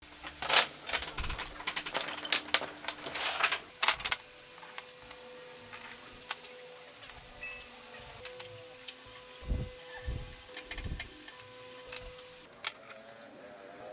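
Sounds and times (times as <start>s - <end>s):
clattering clicks and knocks: 0.2s - 4.2s.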